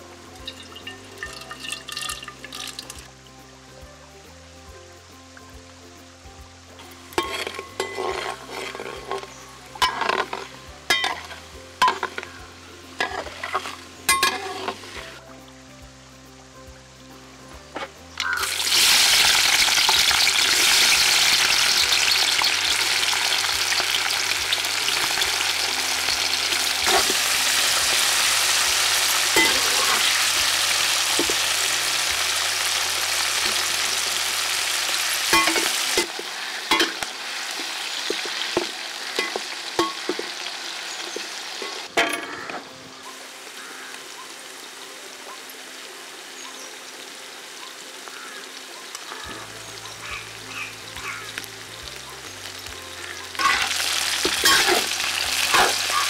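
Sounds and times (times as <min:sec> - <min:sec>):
onions sizzling in hot oil: 0:00.0 - 0:56.0.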